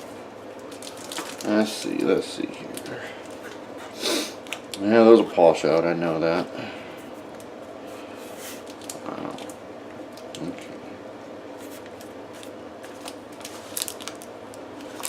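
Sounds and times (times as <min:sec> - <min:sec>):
plastic packaging crinkling: 0:00.6 - 0:03.5, 0:08.5 - 0:10.6, 0:11.6 - 0:15.0.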